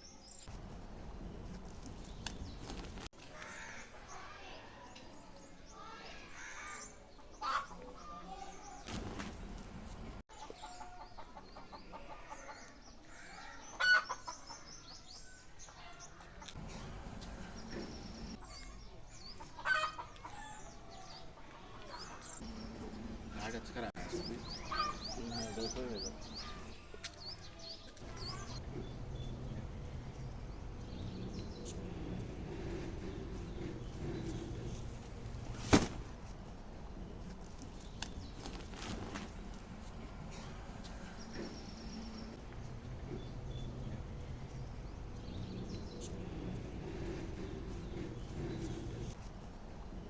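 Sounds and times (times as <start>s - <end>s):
birds chirping and calling: 9.9s - 36.0s, 37.7s - 49.2s.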